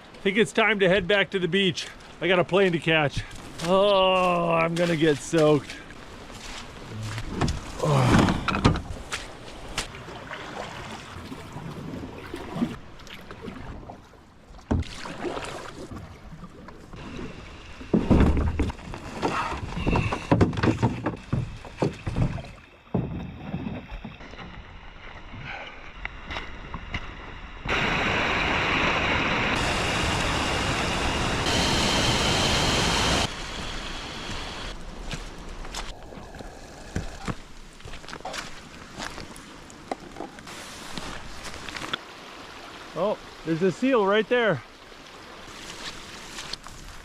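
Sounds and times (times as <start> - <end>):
paddle splashing in water: 4.8 - 30.4, 34.7 - 43.6, 44.6 - 47.0.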